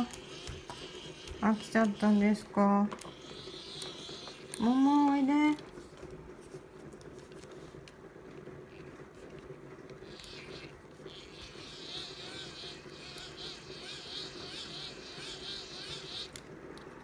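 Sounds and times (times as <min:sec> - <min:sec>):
hand crank dynamo whirring: 0:00.0 - 0:05.8, 0:10.0 - 0:17.0.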